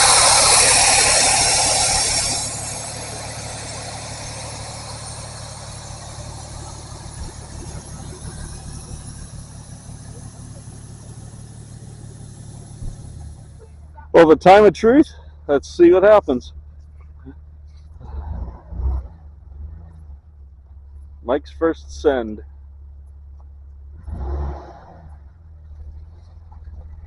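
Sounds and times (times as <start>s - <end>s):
loud hiss: 0.0s - 7.0s
vehicle engine idling: 0.0s - 27.0s.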